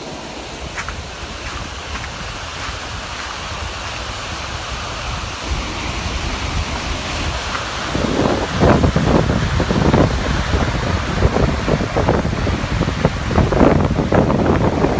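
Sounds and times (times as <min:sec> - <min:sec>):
storm water rushing: 0:00.0 - 0:14.9
wind buffeting microphone: 0:00.0 - 0:14.9.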